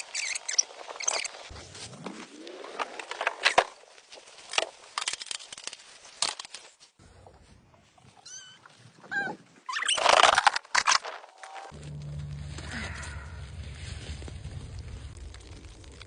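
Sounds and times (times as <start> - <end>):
rustling: 10.0 - 16.0.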